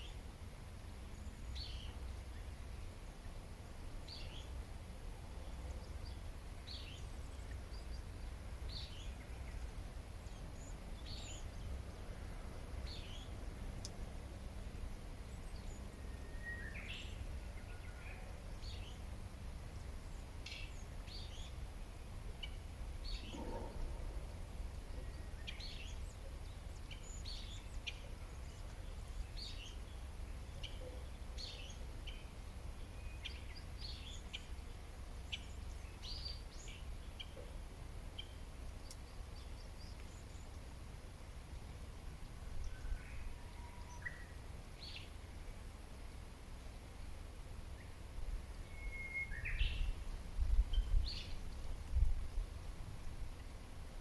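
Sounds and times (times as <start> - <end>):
wild birds chirping: 14.7 - 37.6
steady low rumble: 21.8 - 26.8.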